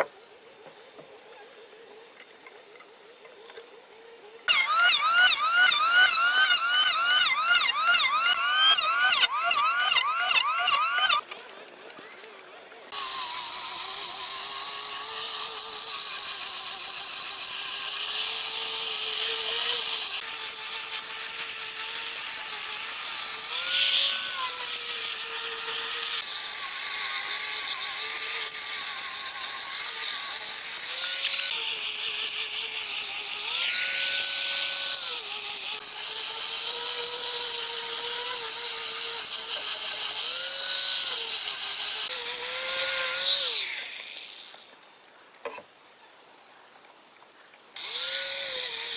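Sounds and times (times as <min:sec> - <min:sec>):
chainsaw cutting wood: 0:04.5 - 0:11.2.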